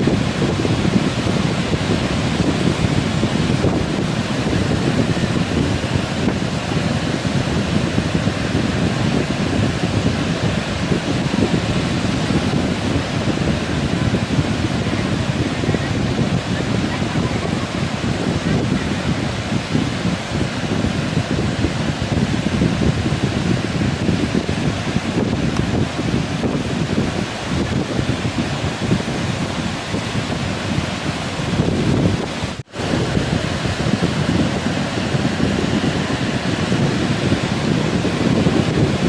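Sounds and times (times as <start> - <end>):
heavy surf breaking: 0.0 - 39.0
wind buffeting microphone: 0.0 - 39.0.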